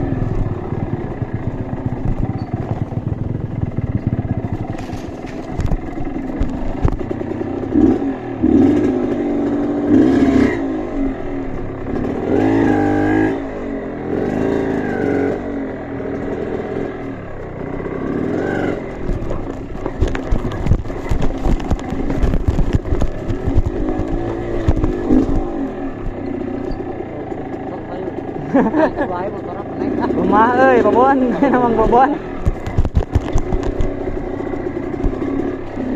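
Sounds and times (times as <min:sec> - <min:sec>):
motorcycle engine revving: 0:00.0 - 0:35.9
sharp clattering knocks: 0:32.4 - 0:35.6.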